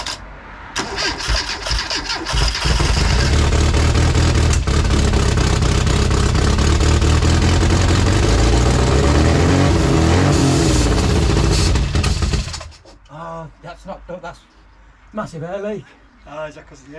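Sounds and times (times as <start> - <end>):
car engine running loud: 2.6 - 12.7.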